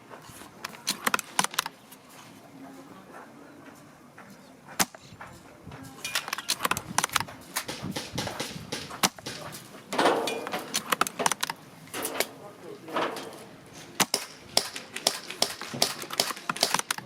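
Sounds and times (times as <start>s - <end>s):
rifle bolt clicks and clacks: 0.6s - 1.8s, 6.0s - 12.3s, 14.0s - 17.0s
spring rifle firing clack: 6.0s - 12.4s, 14.0s - 17.0s.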